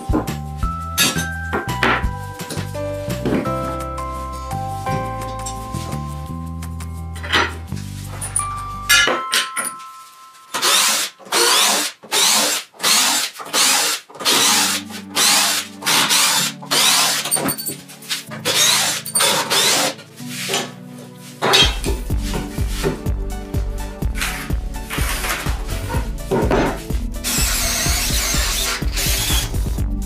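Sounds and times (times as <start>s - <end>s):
background music: 0.0s - 30.0s
power drill boring into wood: 10.6s - 17.5s, 18.4s - 20.0s, 27.2s - 29.7s.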